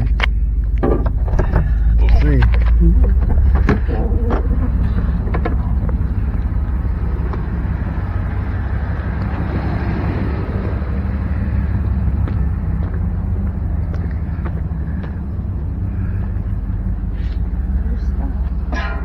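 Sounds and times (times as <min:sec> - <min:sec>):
vehicle engine running: 0:00.0 - 0:19.0
rushing noise of passing car: 0:05.7 - 0:17.1.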